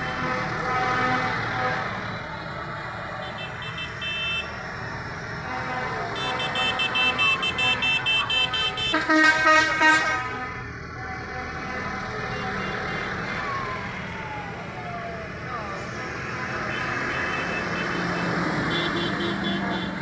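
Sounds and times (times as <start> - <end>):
loud full horn blast: 0.0 - 2.1, 5.4 - 10.6, 16.7 - 20.0
passing engines rumbling: 0.0 - 20.0.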